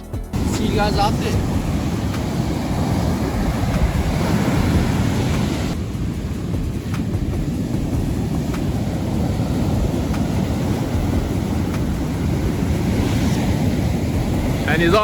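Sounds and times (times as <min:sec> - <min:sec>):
surf rumbling: 0:00.3 - 0:15.0
wind buffeting microphone: 0:00.3 - 0:15.0.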